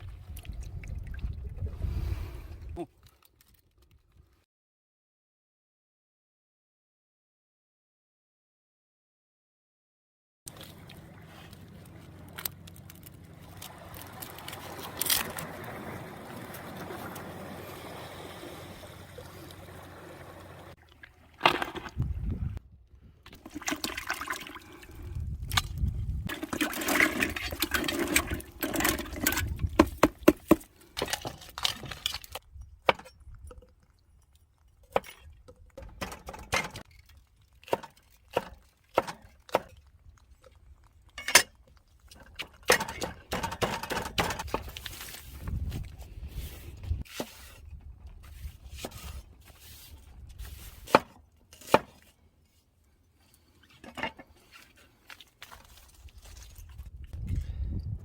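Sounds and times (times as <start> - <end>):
splashing and knocking: 13.1 - 22.2, 23.3 - 24.6, 25.5 - 34.0, 34.8 - 39.9, 41.2 - 47.6
water running: 13.2 - 21.0.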